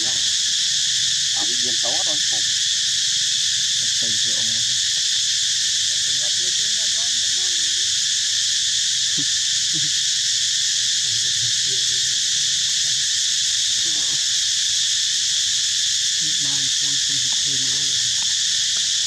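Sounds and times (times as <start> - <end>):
faint voices: 0.0 - 2.6, 3.9 - 4.8, 6.0 - 7.8, 11.0 - 13.0, 13.7 - 14.3, 16.2 - 18.8
insects droning: 0.0 - 19.0.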